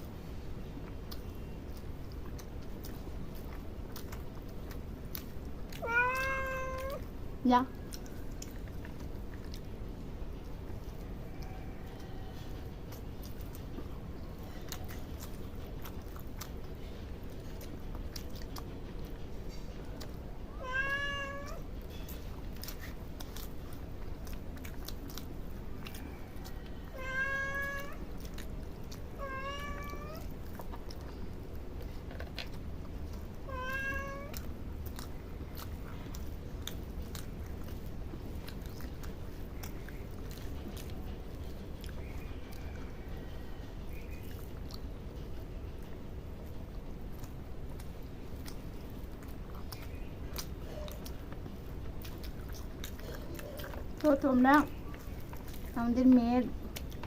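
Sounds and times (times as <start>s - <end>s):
cat chewing food: 0.0s - 57.0s
cat meowing: 5.7s - 7.1s, 20.5s - 21.7s, 26.8s - 28.2s, 29.2s - 30.3s, 33.5s - 34.5s.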